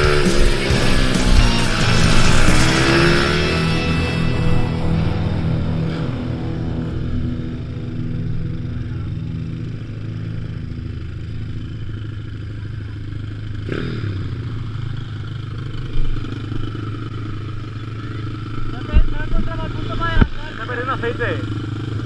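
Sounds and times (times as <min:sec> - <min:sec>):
pit bike engine running: 0:00.0 - 0:22.0.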